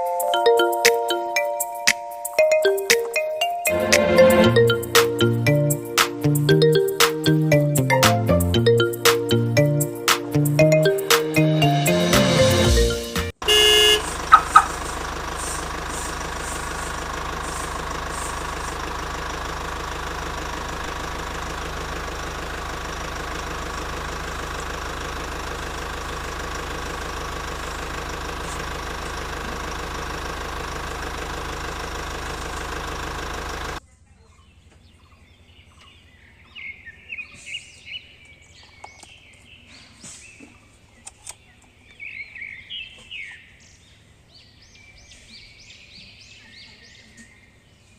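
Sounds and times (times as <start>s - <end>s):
small water pump motor humming: 13.5s - 33.8s.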